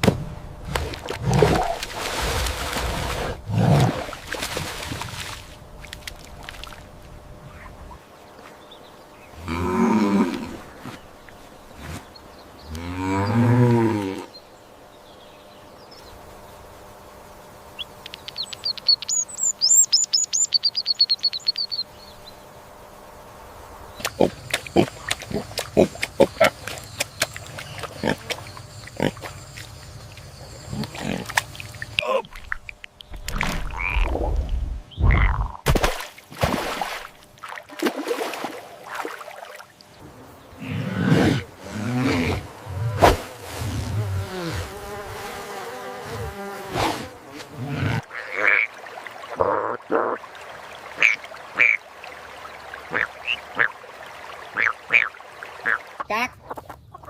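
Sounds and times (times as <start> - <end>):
ducks quacking: 51.0 - 51.8, 52.8 - 53.8, 54.5 - 57.0.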